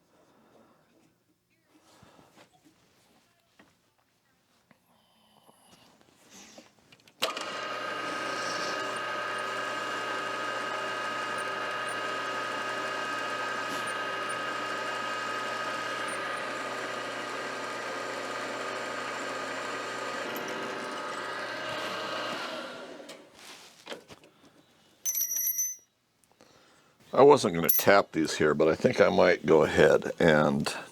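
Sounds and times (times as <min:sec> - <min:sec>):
milling machine spindle motor: 0:07.2 - 0:23.3.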